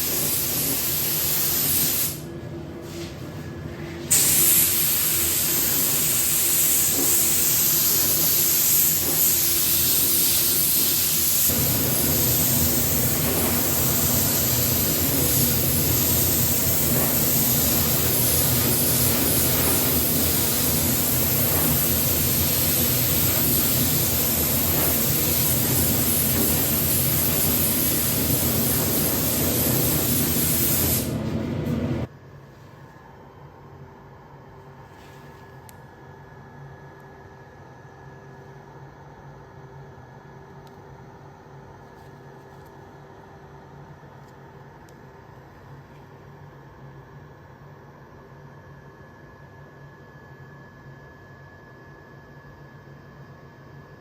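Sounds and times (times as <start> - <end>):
paint spray gun hissing: 0.0 - 2.2, 4.1 - 31.2.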